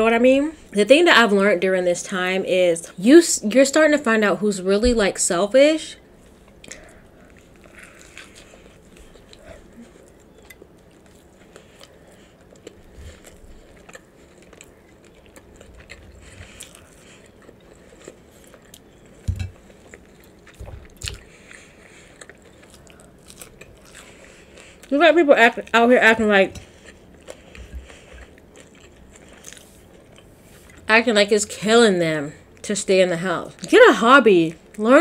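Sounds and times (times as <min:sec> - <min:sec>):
person chewing food: 0:06.1 - 0:25.0, 0:25.6 - 0:30.9
soft low thumps: 0:20.6 - 0:21.2.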